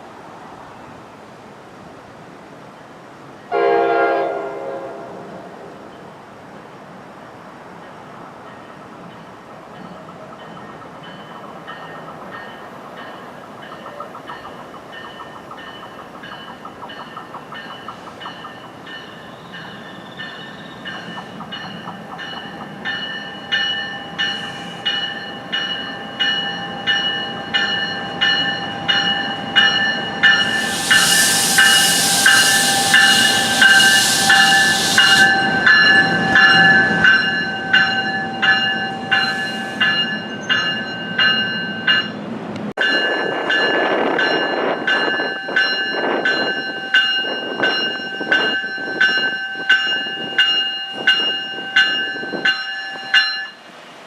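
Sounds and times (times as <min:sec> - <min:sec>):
low train rumble: 0:00.0 - 0:54.0
train warning bell ringing: 0:08.5 - 0:53.7
loud hiss: 0:24.2 - 0:25.2, 0:30.3 - 0:36.4, 0:38.9 - 0:40.1.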